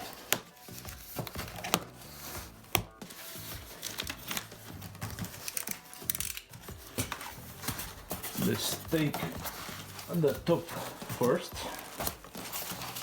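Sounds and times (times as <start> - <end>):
cardboard packaging rustling: 0.0 - 13.0.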